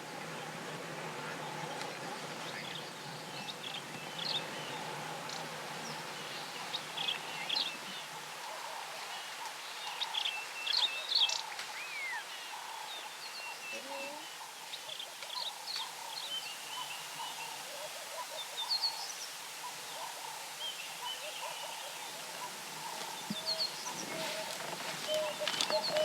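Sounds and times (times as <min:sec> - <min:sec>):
birds chirping and whistling: 0:23.4 - 0:26.0.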